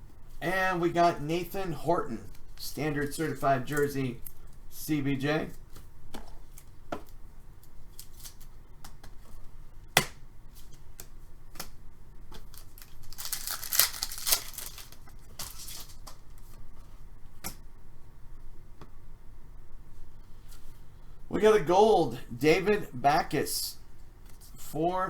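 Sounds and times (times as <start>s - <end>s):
wrapper crinkling and tearing: 12.5s - 16.1s.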